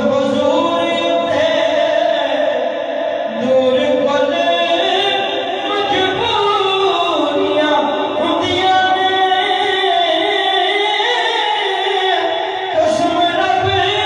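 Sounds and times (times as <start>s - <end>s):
devotional chanting: 0.0s - 14.0s.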